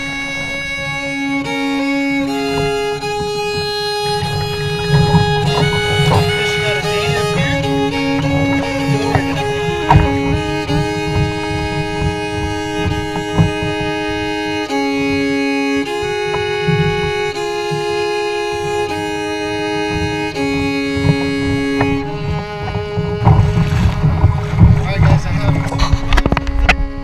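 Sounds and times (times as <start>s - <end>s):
low uneven rumble: 0.0s - 27.0s
violin playing long held notes: 0.0s - 27.0s.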